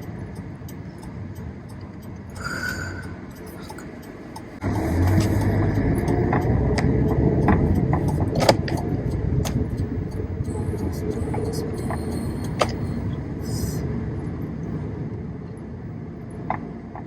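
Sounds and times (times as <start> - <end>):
engine and road rumble: 0.0 - 17.0
sharp click: 6.4 - 9.6.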